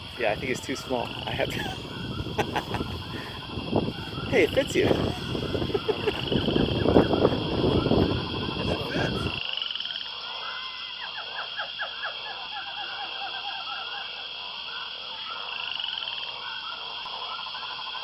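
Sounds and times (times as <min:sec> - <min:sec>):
animals chirping: 0:00.0 - 0:09.4, 0:10.4 - 0:18.0.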